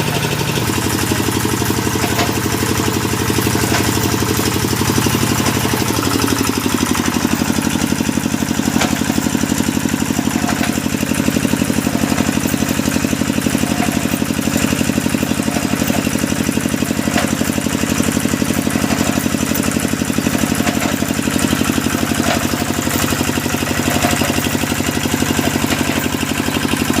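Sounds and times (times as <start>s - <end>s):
drilling machine engine running: 0.0s - 27.0s.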